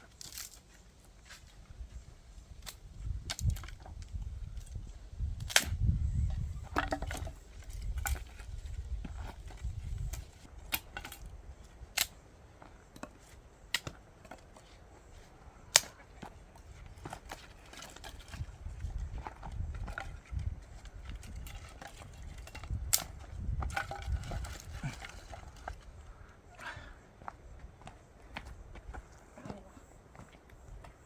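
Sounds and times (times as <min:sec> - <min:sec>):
firewood cracking and snapping: 0:05.4 - 0:05.8, 0:19.8 - 0:25.9.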